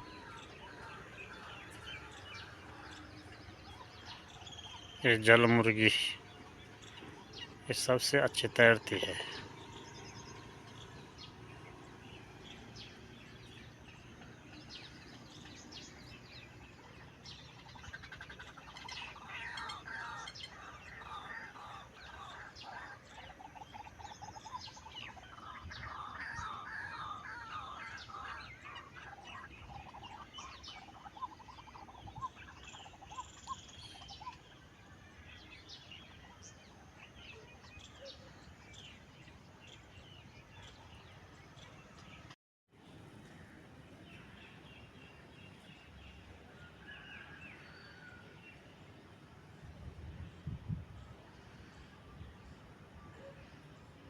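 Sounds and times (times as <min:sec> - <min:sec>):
birds chirping and calling: 0:00.0 - 0:42.4
fast trilling bird calls: 0:17.1 - 0:34.7.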